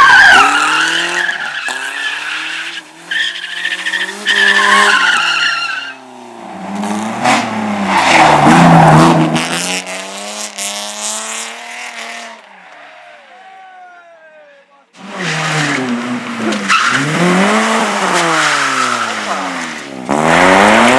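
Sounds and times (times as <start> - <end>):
tyres squealing and skidding: 0.0 - 9.6, 12.2 - 14.1, 15.0 - 19.9
race car engine revving: 0.4 - 12.5, 15.0 - 20.9.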